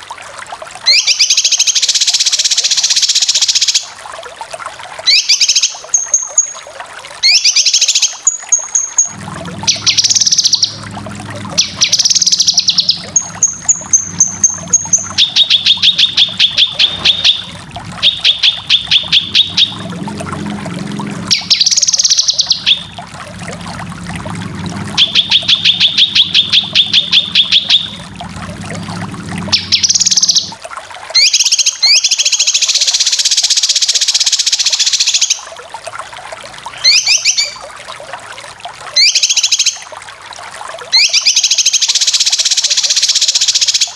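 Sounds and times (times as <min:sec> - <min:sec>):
low hum: 0:09.1 - 0:30.6
bird trilling song: 0:11.6 - 0:19.8, 0:21.3 - 0:22.9, 0:25.0 - 0:28.0.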